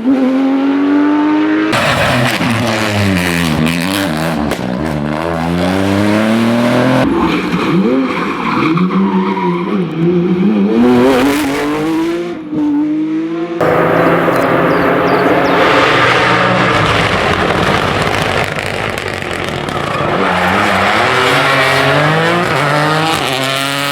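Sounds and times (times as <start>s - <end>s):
rally car engines revving: 0.0s - 23.9s
tyres skidding: 1.8s - 10.3s, 13.6s - 23.9s.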